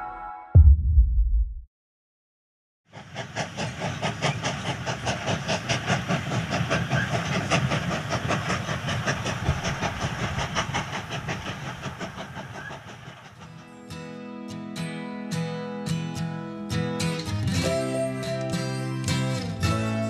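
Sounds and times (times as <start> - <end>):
train wheels clicking on track: 2.9 - 13.8
train rumble and hiss: 2.9 - 14.0, 17.0 - 20.0.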